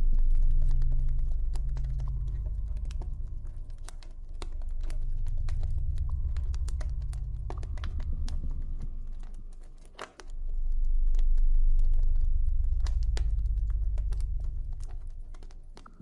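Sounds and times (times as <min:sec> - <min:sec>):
deep low rumble: 0:00.0 - 0:16.0.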